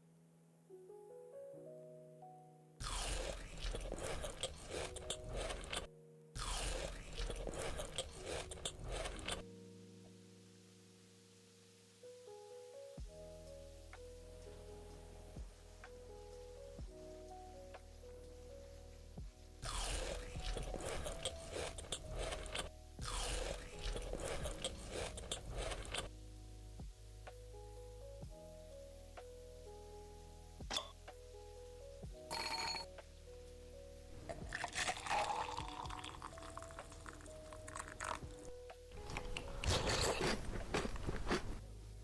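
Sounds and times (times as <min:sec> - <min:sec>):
soft background music: 0:00.0 - 0:42.0
crunchy food being chewed: 0:02.8 - 0:09.4, 0:19.6 - 0:26.1, 0:34.1 - 0:41.6.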